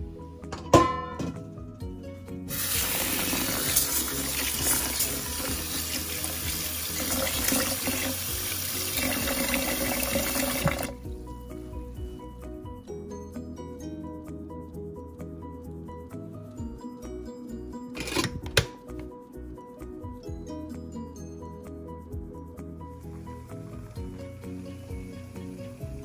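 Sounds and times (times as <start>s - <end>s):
tap water running into pot: 2.5s - 10.9s.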